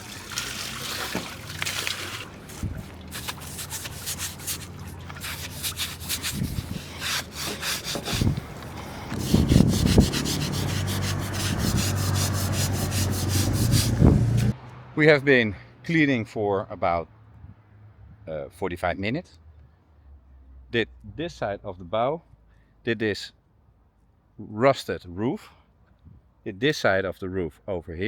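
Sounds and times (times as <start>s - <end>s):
brush scrubbing steel: 0.0s - 14.6s.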